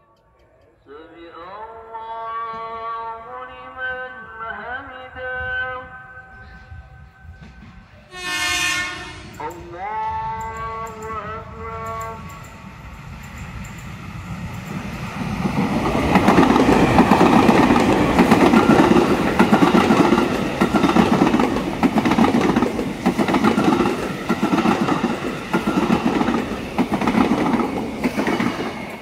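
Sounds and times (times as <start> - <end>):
train wheels clattering: 6.4 - 29.0.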